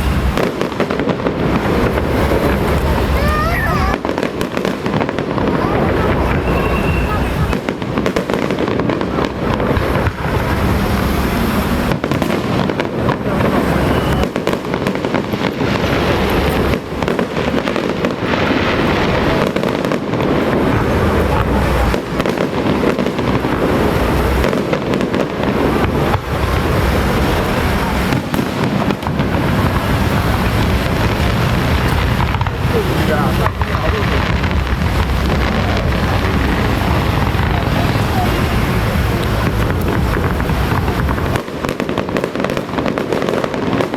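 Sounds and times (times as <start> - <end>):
firecrackers crackling: 0.0 - 43.9
low rumble: 29.7 - 41.4.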